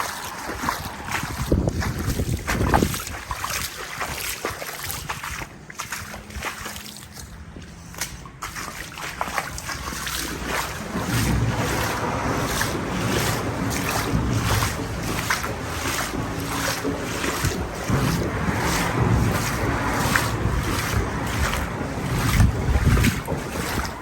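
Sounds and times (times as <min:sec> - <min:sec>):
wind buffeting microphone: 0:00.0 - 0:08.4, 0:09.5 - 0:24.0
feet wading through water: 0:00.0 - 0:24.0.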